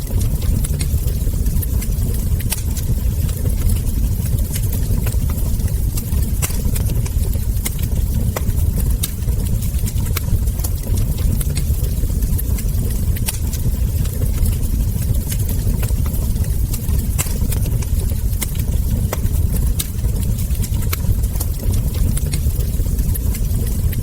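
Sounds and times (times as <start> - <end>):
steady low rumble: 0.0 - 24.0
wood fire crackling: 0.0 - 24.0
sharp pops and snaps: 3.6 - 24.0.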